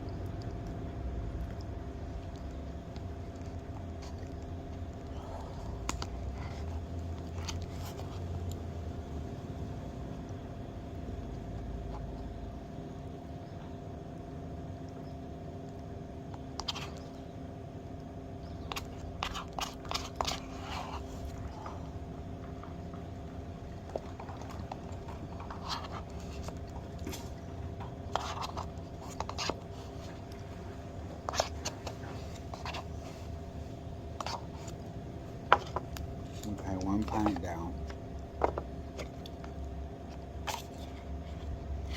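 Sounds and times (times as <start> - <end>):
steady hum: 0.0 - 41.9
spoon scraping ice cream carton: 2.0 - 8.6, 16.4 - 17.3, 18.4 - 41.9.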